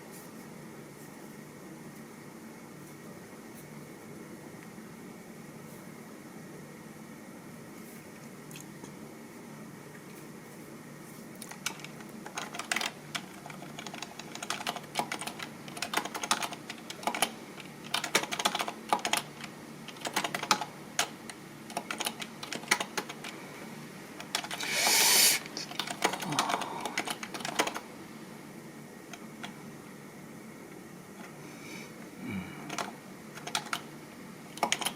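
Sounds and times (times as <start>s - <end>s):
keyboard typing clicks: 11.4s - 21.1s, 21.7s - 23.3s, 25.7s - 27.8s, 32.7s - 33.9s, 34.6s - 34.9s
short rush of noise: 24.6s - 25.5s.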